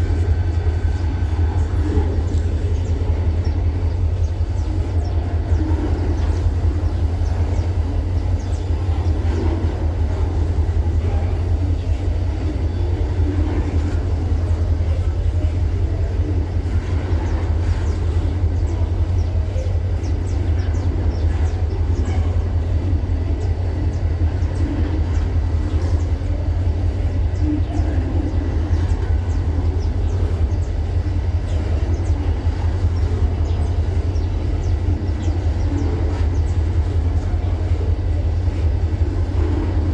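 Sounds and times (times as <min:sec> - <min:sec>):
freight train rumbling: 0:00.0 - 0:39.9.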